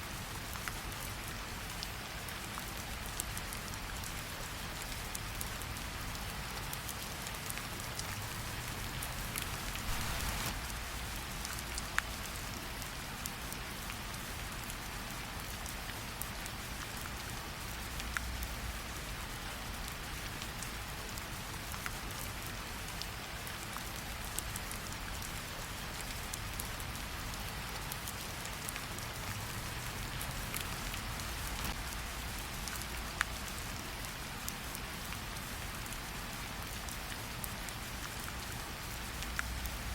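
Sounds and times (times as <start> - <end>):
steady rain falling: 0.0 - 39.9
fireplace crackling: 9.1 - 10.7.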